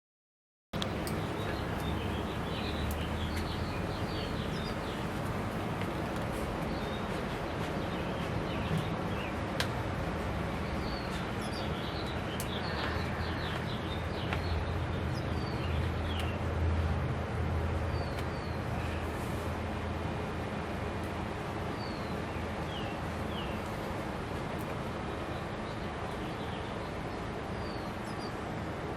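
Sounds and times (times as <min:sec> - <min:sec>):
small birds chirping: 0:00.8 - 0:09.4.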